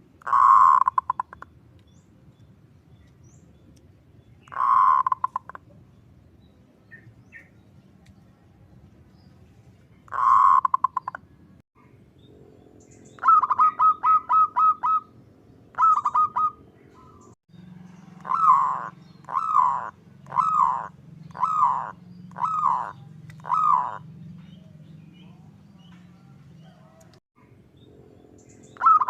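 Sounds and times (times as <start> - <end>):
dove cooing: 0.2 - 1.4, 4.4 - 5.6, 10.1 - 11.2, 12.3 - 27.2, 27.8 - 29.0.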